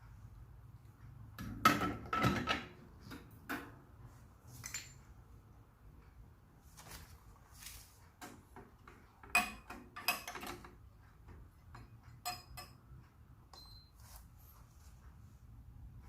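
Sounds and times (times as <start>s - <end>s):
metal clinks and knocks: 4.6s - 5.1s, 8.9s - 10.8s.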